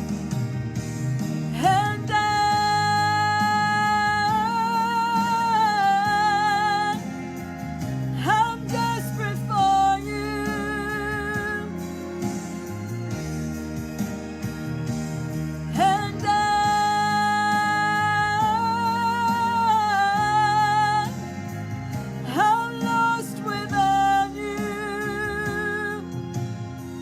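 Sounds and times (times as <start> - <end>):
worship band instrumental backing: 0.0 - 27.0
person singing with vibrato: 1.5 - 12.7, 15.7 - 27.0.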